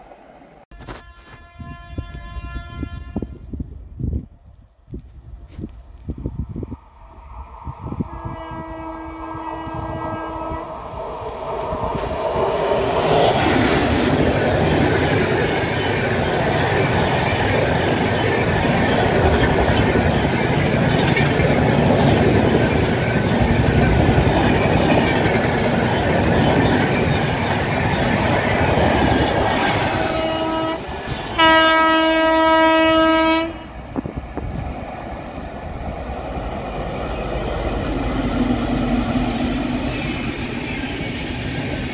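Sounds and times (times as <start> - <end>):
locomotive horn: 0.7 - 3.4, 8.1 - 10.7, 29.6 - 33.8
train wheels clattering on rails: 10.8 - 31.4.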